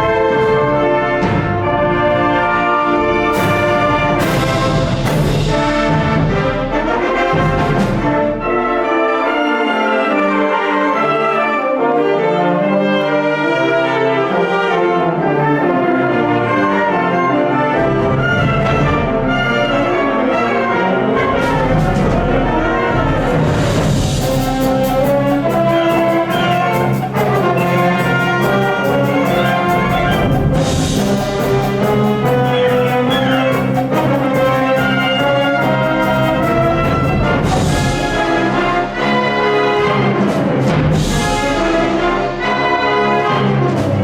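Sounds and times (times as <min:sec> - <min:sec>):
wind band playing: 0:00.0 - 0:44.0
percussion strikes: 0:03.0 - 0:08.8, 0:21.2 - 0:44.0.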